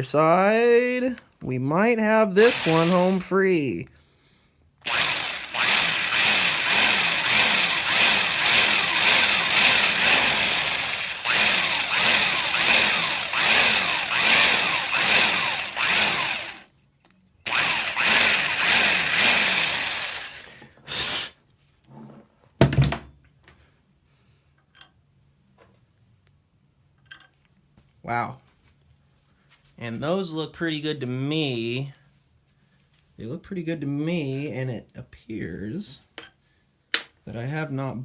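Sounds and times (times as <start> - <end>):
electric drill boring into wood: 2.4 - 3.2, 4.8 - 16.7, 17.5 - 20.6.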